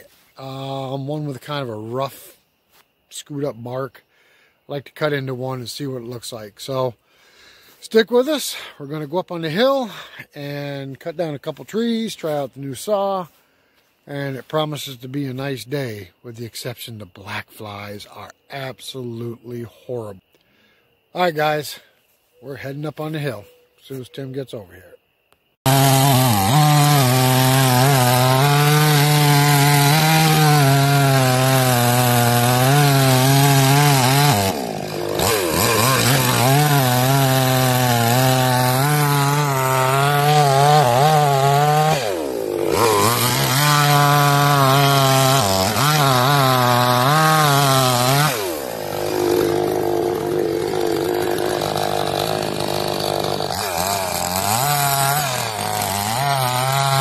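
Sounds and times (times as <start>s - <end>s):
chainsaw cutting wood: 25.6s - 57.0s.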